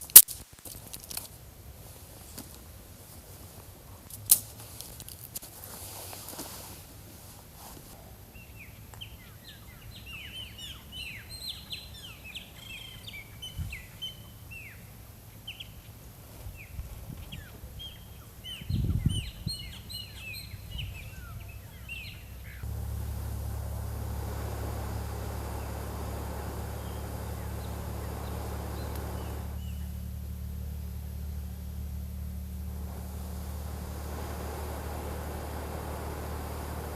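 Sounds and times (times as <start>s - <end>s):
small birds chirping: 8.1s - 36.9s
steady low rumbling: 16.7s - 36.9s.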